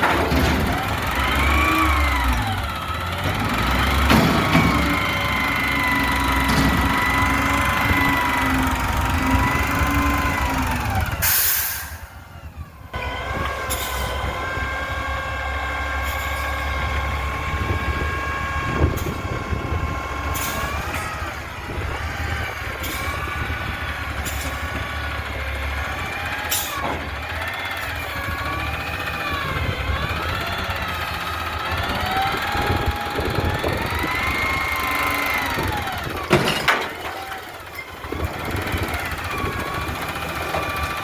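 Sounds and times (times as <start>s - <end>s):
garbage truck engine and hydraulics: 0.0s - 41.0s.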